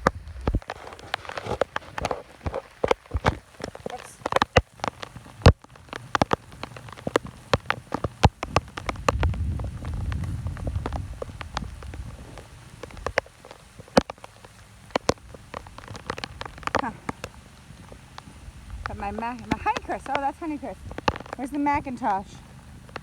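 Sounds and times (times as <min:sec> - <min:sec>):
heavy rain falling: 0:00.0 - 0:23.0
raindrops ticking close by: 0:00.0 - 0:23.0
low rumble: 0:08.8 - 0:13.2.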